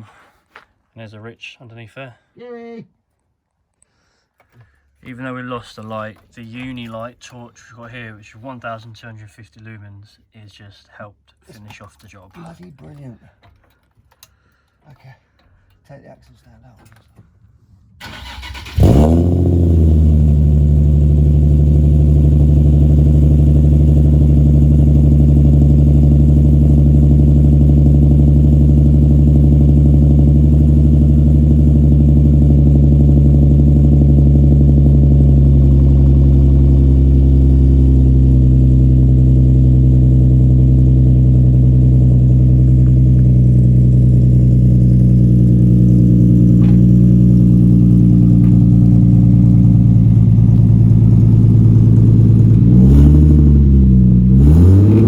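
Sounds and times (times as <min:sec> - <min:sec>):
car engine starting and idling: 0:18.0 - 0:55.0.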